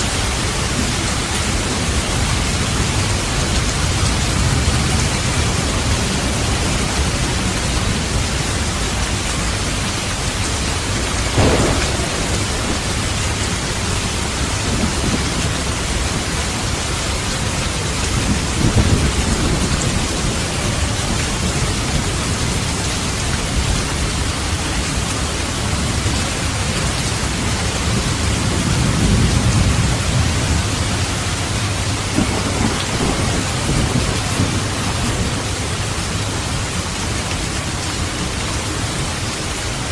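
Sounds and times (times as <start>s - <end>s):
steady rain: 0.0s - 39.9s
rumbling thunder: 11.2s - 22.6s, 27.4s - 36.9s
thunder crack: 11.3s - 16.3s, 32.1s - 35.5s.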